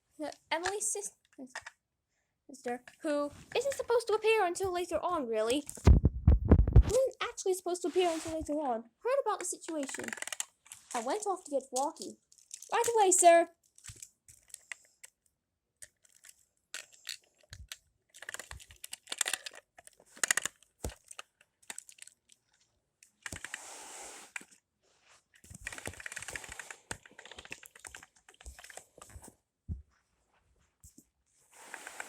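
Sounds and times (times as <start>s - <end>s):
plastic toy train pieces clicking: 0.6s - 0.9s, 9.4s - 15.2s, 15.8s - 22.3s, 25.5s - 28.8s.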